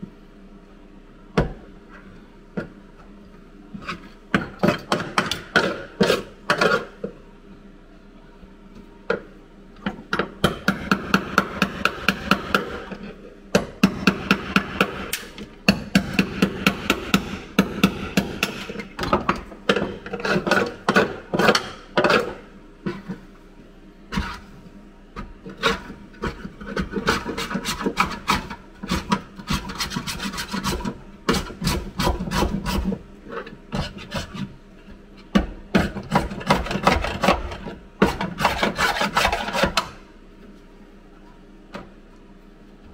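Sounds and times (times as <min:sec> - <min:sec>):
hand tool rasping sheet metal: 0:25.6 - 0:33.0, 0:38.0 - 0:39.9.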